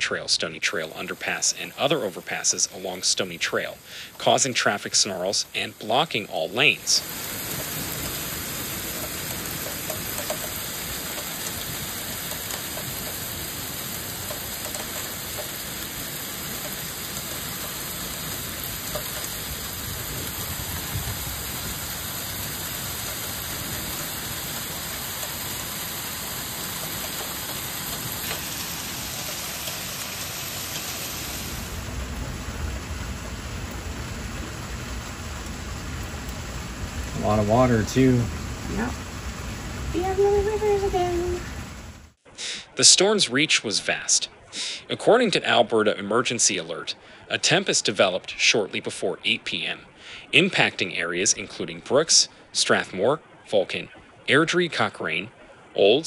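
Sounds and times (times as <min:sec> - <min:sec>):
hail pelting down: 0:00.0 - 0:42.1.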